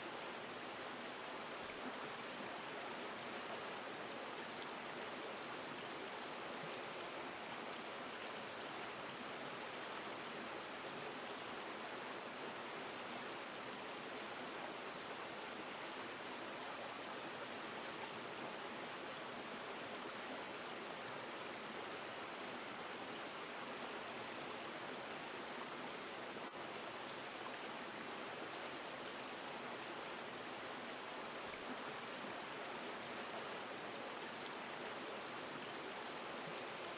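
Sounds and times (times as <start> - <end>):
river water flowing over rocks: 0.0 - 36.9.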